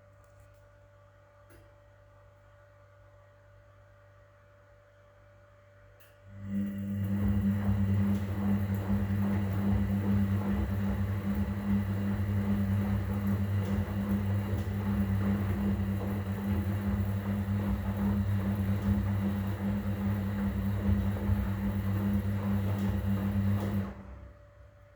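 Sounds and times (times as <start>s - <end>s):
washing machine running: 6.3s - 24.9s.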